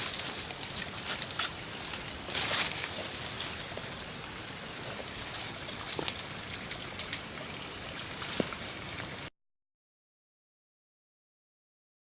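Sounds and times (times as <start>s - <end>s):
grass and brush crackling: 0.0s - 9.3s
stream running: 0.0s - 9.3s.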